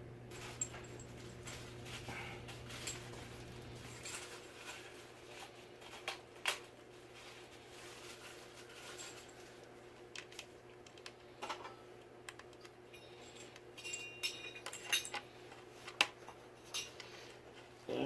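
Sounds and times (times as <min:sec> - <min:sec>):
faint steady hum: 0:00.0 - 0:18.0
metal hardware clinking: 0:13.0 - 0:15.2.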